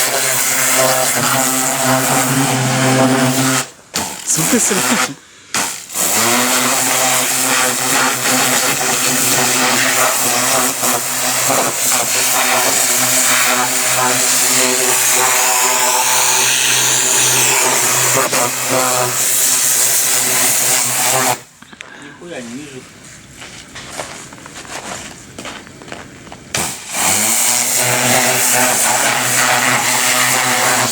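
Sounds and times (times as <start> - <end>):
water jet hissing: 0.0 - 21.5, 26.5 - 30.9
pressure washer pump humming: 0.0 - 21.6, 26.1 - 30.9.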